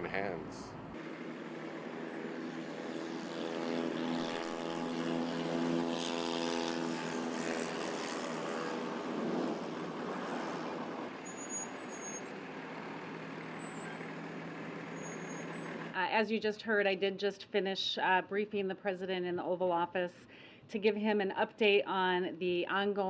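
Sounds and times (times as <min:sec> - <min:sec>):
large vehicle engine drone: 0:00.0 - 0:16.0.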